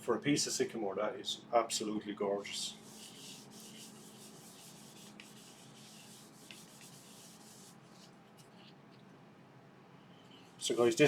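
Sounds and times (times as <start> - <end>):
faint steady hum: 0.0 - 11.0
paper towel rubbing wood: 2.7 - 8.1.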